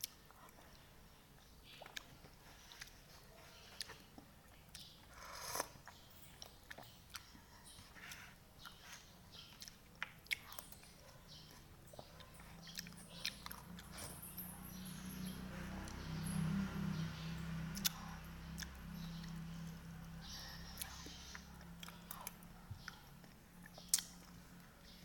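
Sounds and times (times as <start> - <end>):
noodles being chewed: 0.0 - 17.0, 17.6 - 25.0
slurp: 5.1 - 6.0
mouth clicks and smacks: 20.0 - 24.4.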